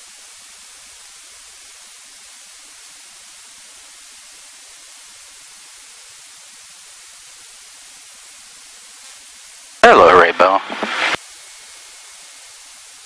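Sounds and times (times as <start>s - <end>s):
radio static hiss: 9.8s - 11.2s.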